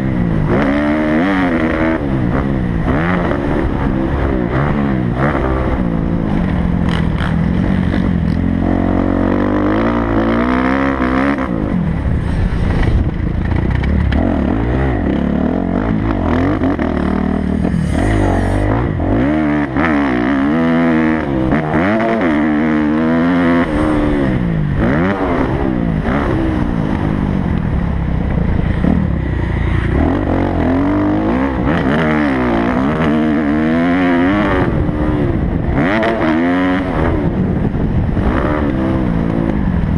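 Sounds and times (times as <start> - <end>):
motocross bike engine revving: 0.0 - 27.6, 28.6 - 39.9.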